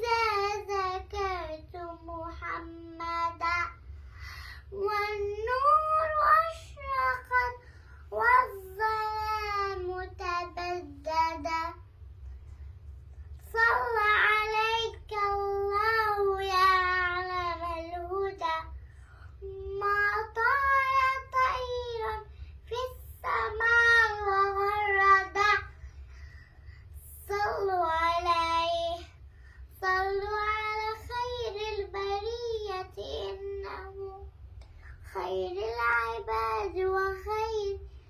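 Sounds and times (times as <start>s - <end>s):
girl singing unaccompanied: 0.0s - 12.0s, 13.3s - 38.0s.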